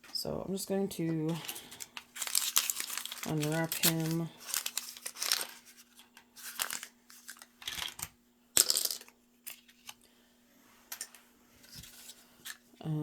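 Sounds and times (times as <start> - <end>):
plastic wrapper crinkling and tearing: 1.4 - 7.8.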